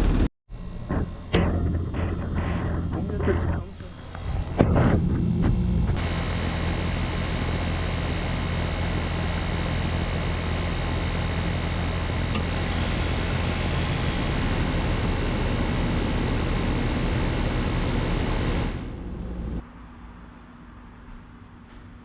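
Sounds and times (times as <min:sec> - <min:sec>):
compressor low electrical hum: 0:00.0 - 0:22.0
condenser fan rushing: 0:06.0 - 0:19.6.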